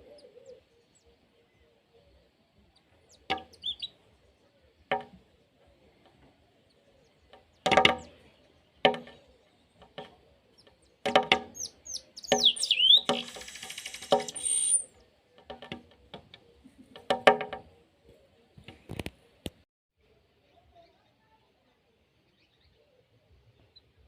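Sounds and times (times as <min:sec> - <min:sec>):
birds calling: 0:00.0 - 0:19.4
small bird chirping and whistling: 0:03.5 - 0:03.9, 0:11.6 - 0:14.9.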